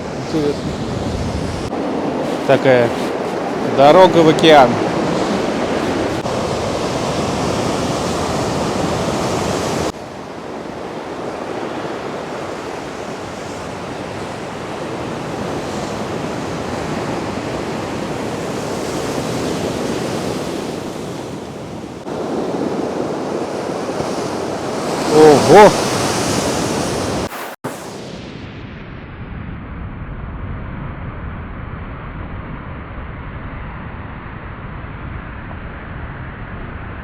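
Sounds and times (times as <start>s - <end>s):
wind buffeting microphone: 0.0s - 27.3s
surf crashing on shore: 0.0s - 27.8s.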